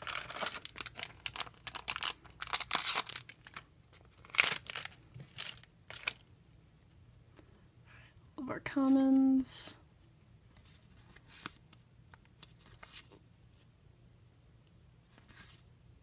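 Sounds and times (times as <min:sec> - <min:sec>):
foil pack crinkling and tearing: 0:00.0 - 0:06.2.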